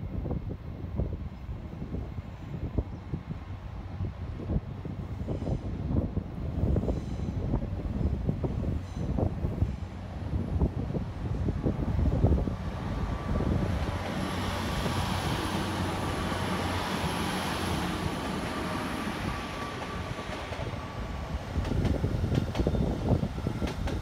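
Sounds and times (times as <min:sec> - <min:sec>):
train rumbling with high whine: 0:00.2 - 0:24.0.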